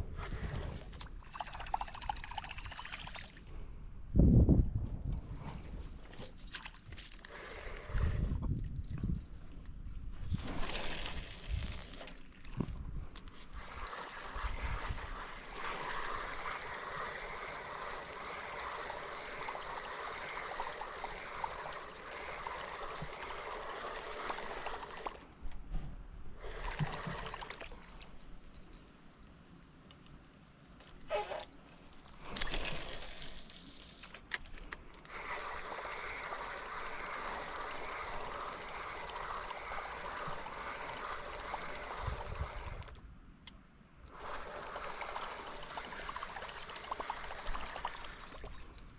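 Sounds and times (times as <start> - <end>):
water trickling and gurgling: 0.1 - 3.6, 10.4 - 25.5, 44.1 - 48.9.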